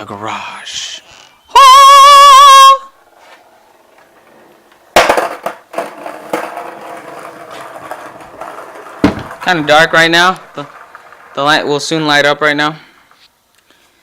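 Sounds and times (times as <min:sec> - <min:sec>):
skateboard wheels rolling: 0:01.6 - 0:13.4
skateboard dropped on floor: 0:03.2 - 0:11.4.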